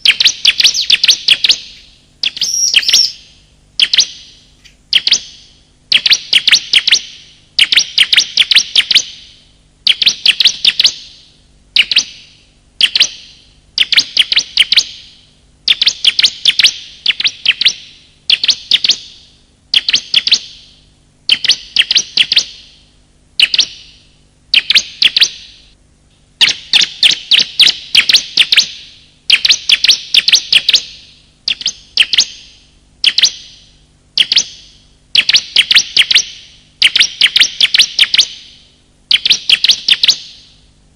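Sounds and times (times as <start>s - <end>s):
bird chirping rapidly: 0.0s - 9.2s, 11.8s - 12.1s, 21.3s - 22.7s, 23.4s - 25.6s, 26.4s - 40.5s.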